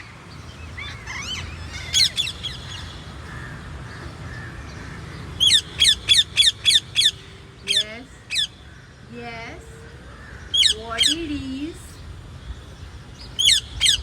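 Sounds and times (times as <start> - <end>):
parrot calling: 0.8 - 3.0, 5.4 - 8.6, 10.5 - 11.2.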